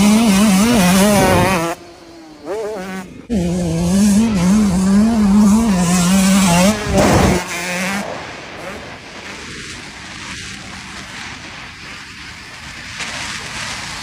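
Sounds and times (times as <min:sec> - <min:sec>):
dirt bike engine revving: 0:00.0 - 0:11.2.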